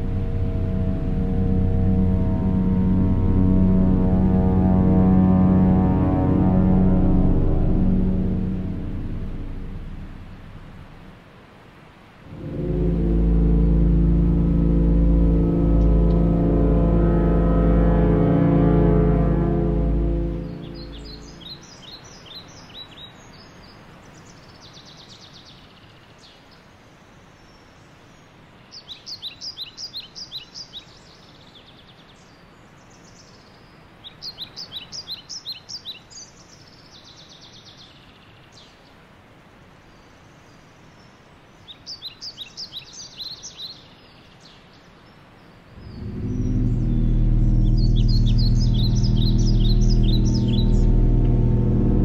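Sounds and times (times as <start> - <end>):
birds chirping: 0.0 - 11.1, 12.3 - 23.1, 45.7 - 52.0
loud deep tone: 0.0 - 11.2, 12.3 - 21.6, 45.8 - 52.0
background hiss: 0.0 - 52.0.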